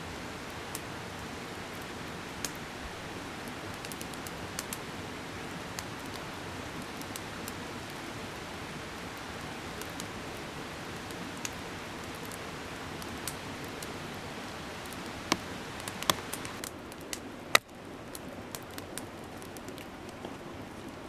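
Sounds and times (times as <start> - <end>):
sharp snaps: 15.3 - 17.7.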